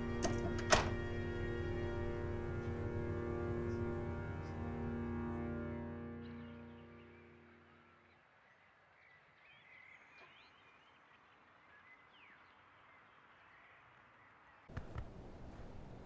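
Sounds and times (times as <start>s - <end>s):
background music: 0.0s - 8.1s
background hiss: 8.2s - 16.0s.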